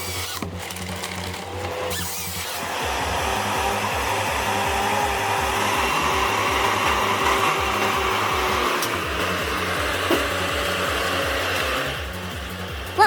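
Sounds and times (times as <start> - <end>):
heavy vehicle engine running: 2.6 - 13.0.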